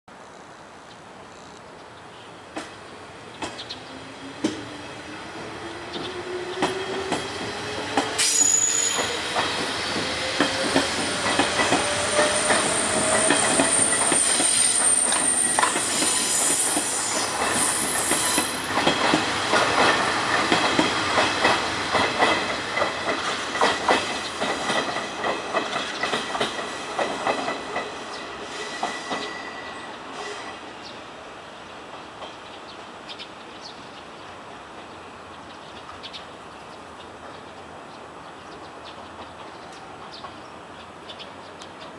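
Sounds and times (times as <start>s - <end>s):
thin high squeal: 8.2s - 9.2s.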